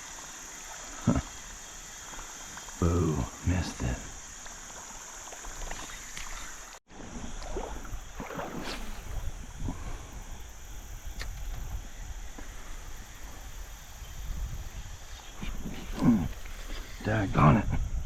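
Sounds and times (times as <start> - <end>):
water sloshing in creek: 0.0 - 17.7.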